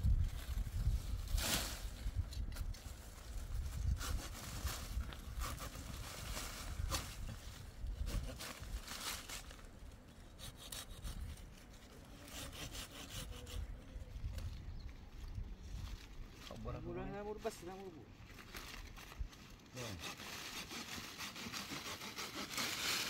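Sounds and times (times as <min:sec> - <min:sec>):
rasping scraping strokes: 0:10.3 - 0:13.8, 0:19.8 - 0:23.0.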